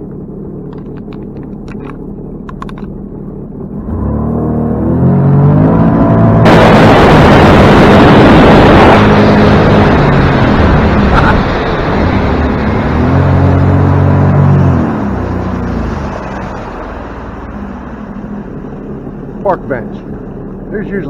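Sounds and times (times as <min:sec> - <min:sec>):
small boat engine running: 0:00.0 - 0:21.0
rush of wind and water: 0:05.4 - 0:21.0.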